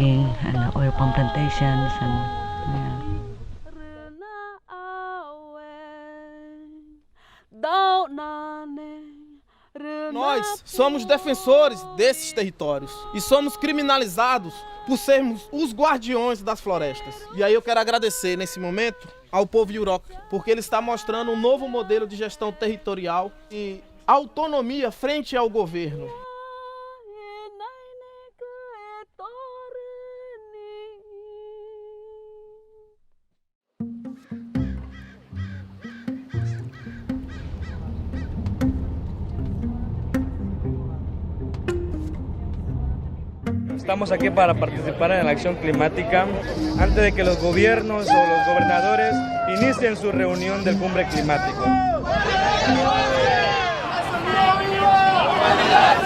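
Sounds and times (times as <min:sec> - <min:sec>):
woman singing unaccompanied: 0:00.0 - 0:19.3, 0:19.9 - 0:24.1, 0:26.0 - 0:32.8.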